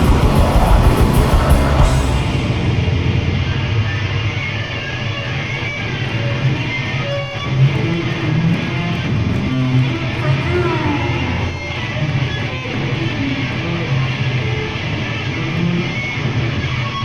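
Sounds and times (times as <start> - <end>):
heavy band playing live: 0.0 - 6.4
gliding whining tones: 0.0 - 14.4
distorted electric guitar: 0.0 - 17.0.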